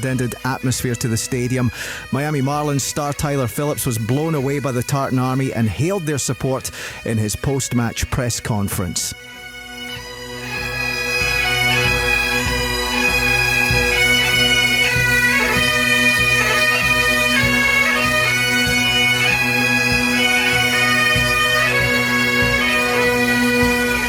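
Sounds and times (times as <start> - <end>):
bagpipes playing a tune: 0.0 - 24.0.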